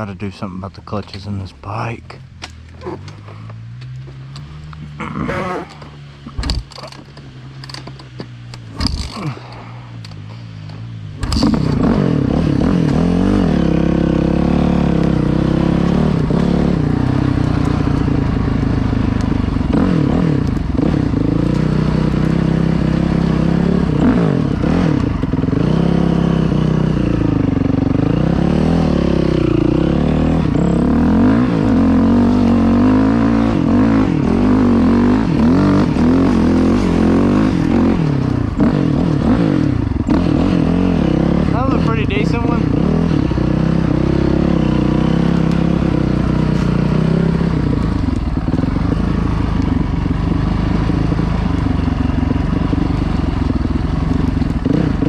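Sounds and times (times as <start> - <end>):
dirt bike engine revving: 11.2 - 55.0.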